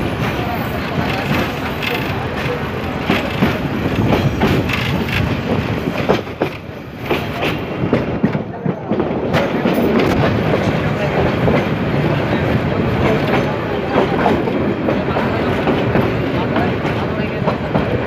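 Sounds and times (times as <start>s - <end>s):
wheels clattering over rail joints: 0.0s - 8.1s
train running rumble: 0.0s - 18.0s.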